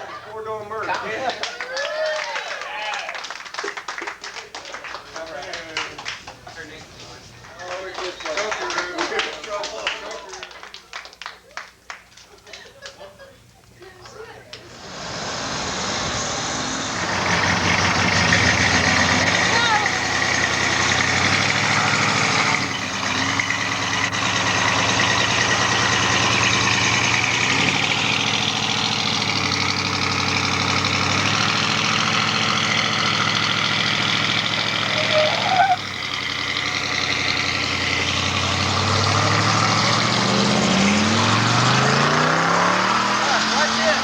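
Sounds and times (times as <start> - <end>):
car engine idling and revving: 14.6 - 44.0.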